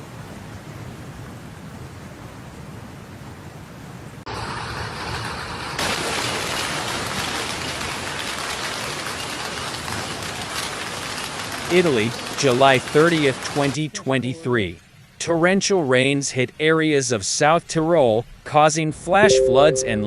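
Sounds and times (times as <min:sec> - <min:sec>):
heavy rain pouring: 0:05.8 - 0:13.8.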